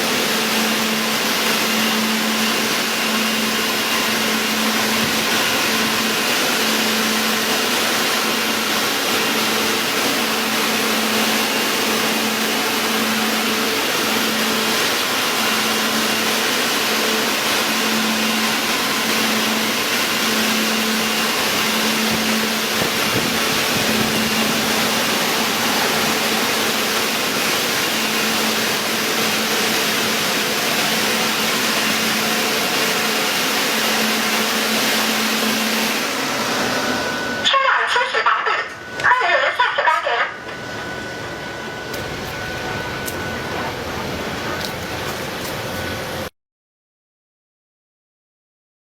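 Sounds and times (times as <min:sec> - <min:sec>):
car wash machinery rushing: 0:00.0 - 0:46.3
low hum: 0:17.6 - 0:33.0.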